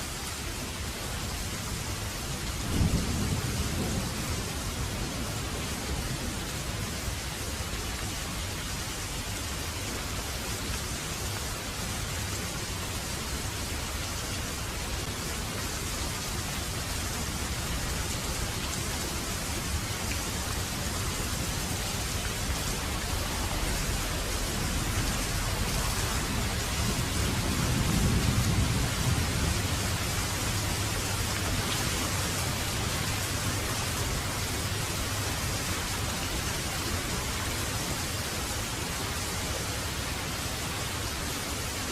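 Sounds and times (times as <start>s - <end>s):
heavy rain falling: 0.0s - 41.9s
low rumble of thunder: 2.4s - 7.3s, 21.2s - 33.6s.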